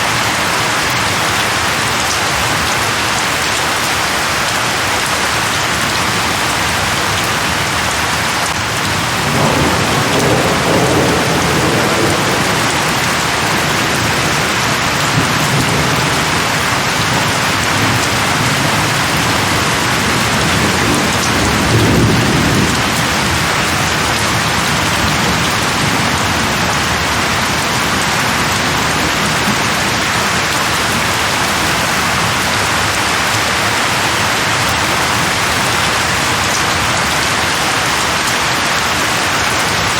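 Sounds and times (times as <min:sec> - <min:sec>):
rain falling on leaves: 0:00.0 - 0:39.9
thunder rumbling: 0:06.0 - 0:36.9.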